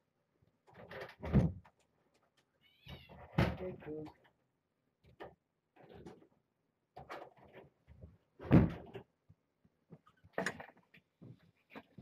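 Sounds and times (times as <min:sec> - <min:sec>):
objects knocking and rustling: 0:00.6 - 0:02.4, 0:05.0 - 0:12.0.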